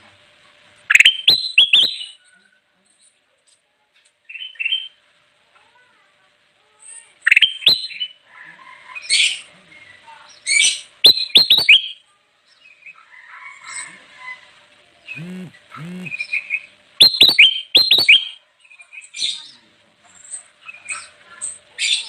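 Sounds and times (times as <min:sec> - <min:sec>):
bird chirping and whistling: 0:00.9 - 0:02.1, 0:11.0 - 0:12.0, 0:17.0 - 0:18.4.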